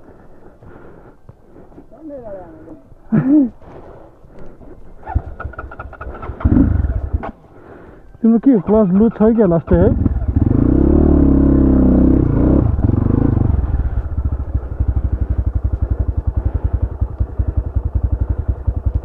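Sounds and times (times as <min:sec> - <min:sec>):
motorcycle engine revving and idling: 0:05.0 - 0:07.4, 0:08.4 - 0:19.0.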